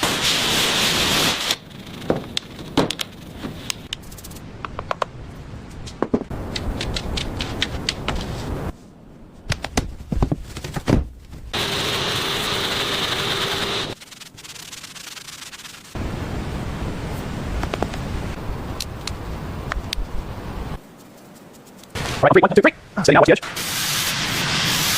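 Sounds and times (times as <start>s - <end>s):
sanding and scraping on boat hull: 12.5s - 16.0s.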